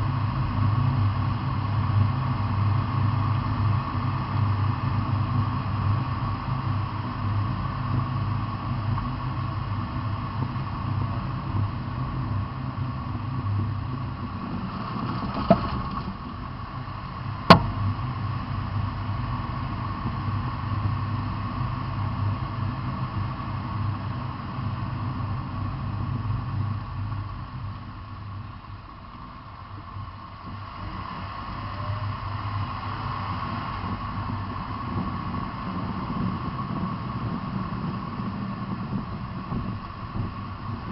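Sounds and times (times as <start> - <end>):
steady mechanical hum: 0.0 - 40.9
sharp pops: 17.5 - 17.8.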